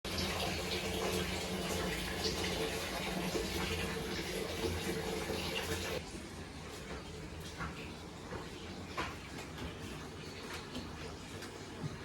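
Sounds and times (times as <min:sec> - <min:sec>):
running water rushing: 0:00.1 - 0:06.0.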